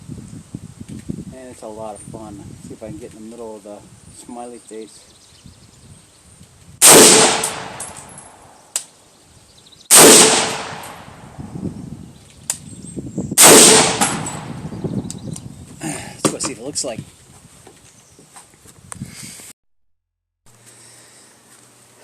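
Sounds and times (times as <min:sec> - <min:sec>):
carbine gunshots: 0:06.8 - 0:08.4, 0:09.9 - 0:11.1, 0:13.4 - 0:14.5.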